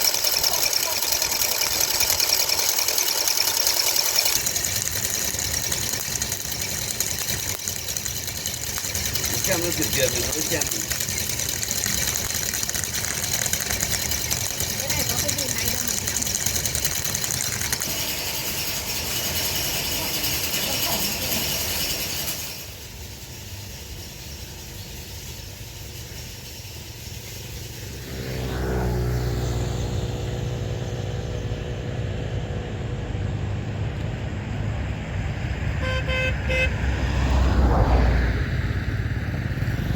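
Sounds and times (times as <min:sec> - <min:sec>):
vehicle engine starting: 0:00.0 - 0:39.9
short horn toot: 0:35.8 - 0:36.8.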